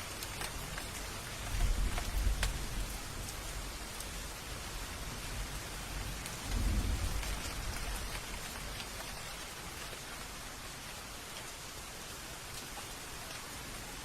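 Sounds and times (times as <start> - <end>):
steady rain falling: 0.0 - 14.0
low roll of thunder: 5.2 - 9.0.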